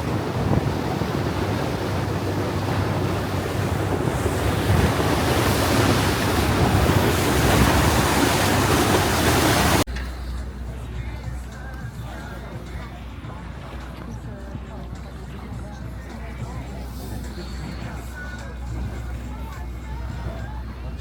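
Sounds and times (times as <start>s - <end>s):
wind on microphone: 0.0s - 9.9s
rushing water: 0.0s - 21.0s.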